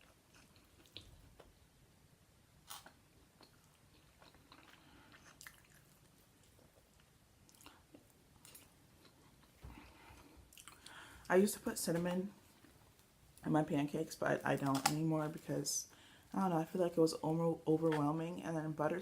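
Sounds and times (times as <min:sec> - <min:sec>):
person chewing food: 0:00.0 - 0:01.8, 0:02.6 - 0:11.2
soft mouth clicks and smacks: 0:02.7 - 0:11.0.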